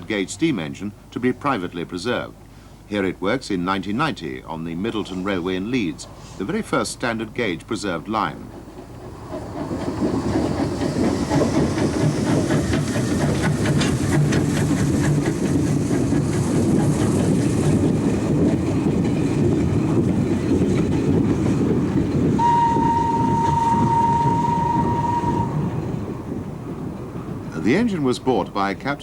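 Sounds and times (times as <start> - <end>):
steam locomotive rumbling: 0.0 - 29.0
steam whistle: 22.4 - 25.8.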